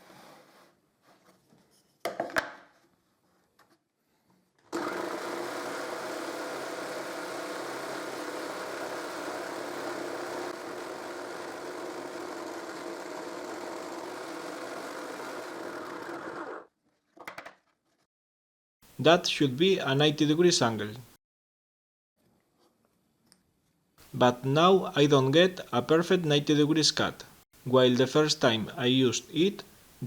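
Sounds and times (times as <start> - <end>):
jigsaw cutting wood: 4.7 - 16.7.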